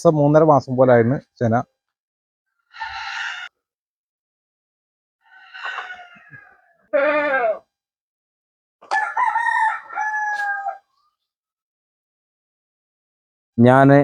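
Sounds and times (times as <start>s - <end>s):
rooster crowing: 2.7s - 3.6s, 5.2s - 6.8s, 8.8s - 11.0s
animal call with falling pitch: 5.3s - 7.6s, 8.9s - 10.9s.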